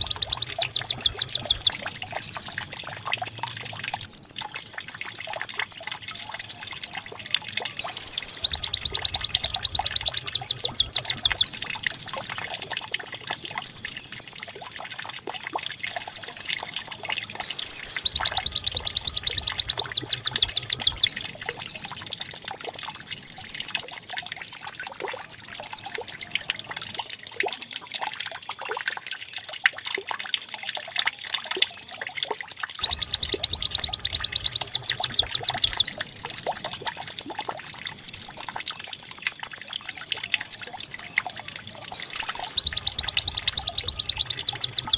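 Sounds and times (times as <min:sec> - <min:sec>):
bird singing fast trills: 0:00.0 - 0:26.6, 0:32.8 - 0:44.9.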